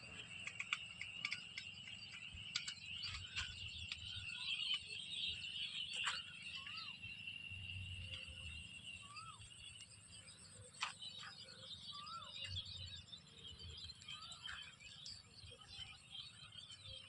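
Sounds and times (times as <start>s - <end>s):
scattered ticks: 0.0s - 7.0s, 7.7s - 13.0s
bird chirps: 0.0s - 17.0s
high-pitched insect chorus: 0.0s - 17.0s.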